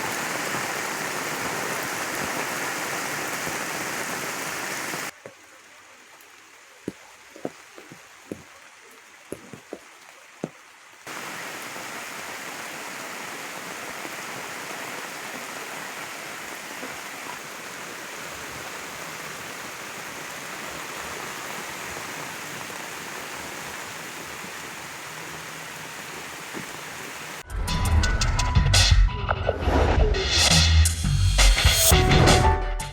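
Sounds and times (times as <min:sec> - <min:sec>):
heavy rain downpour: 0:00.0 - 0:27.4.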